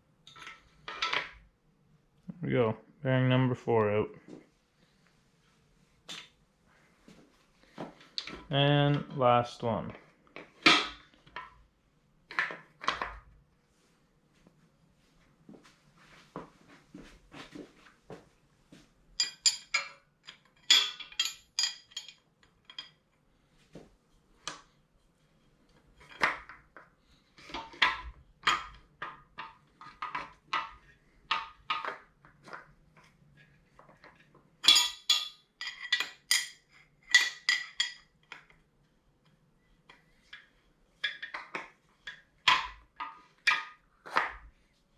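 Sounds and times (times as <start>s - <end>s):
steel tool parts clinking: 19.2s - 23.0s, 34.6s - 38.0s.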